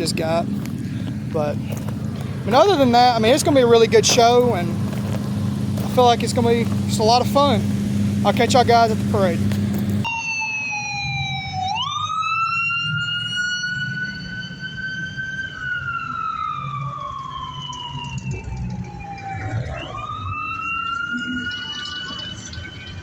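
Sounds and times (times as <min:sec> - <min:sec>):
low rumble: 0:00.0 - 0:10.1
siren wailing: 0:00.0 - 0:23.0.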